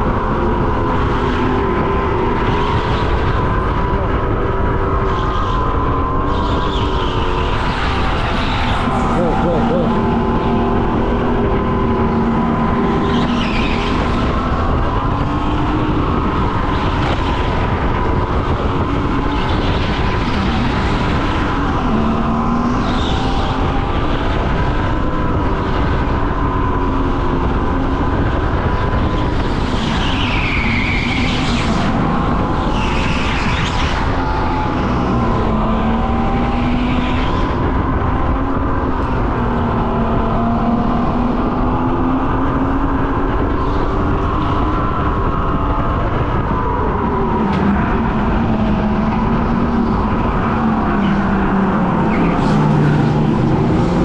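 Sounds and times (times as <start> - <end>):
tire squeals: 0.0 - 26.5, 28.0 - 39.2, 40.0 - 54.0
go-kart motor hum: 0.0 - 54.0.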